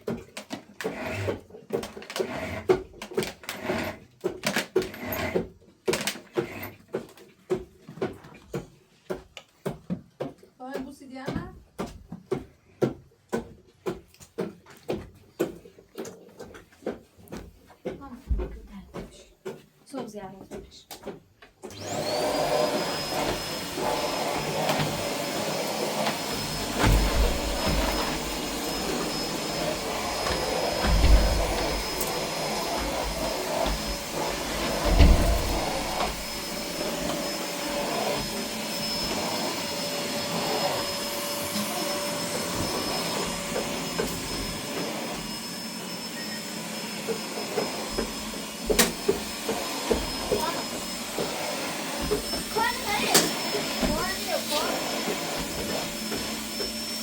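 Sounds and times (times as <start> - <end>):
electric motor whining: 21.7 - 57.0
dull thumps: 26.1 - 37.4.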